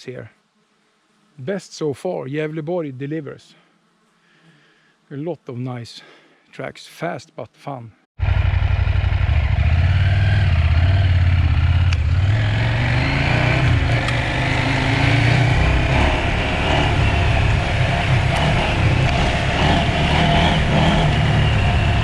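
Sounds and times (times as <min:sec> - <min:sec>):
motorcycle engine running: 0:08.2 - 0:22.0
road and wind noise: 0:08.2 - 0:22.0.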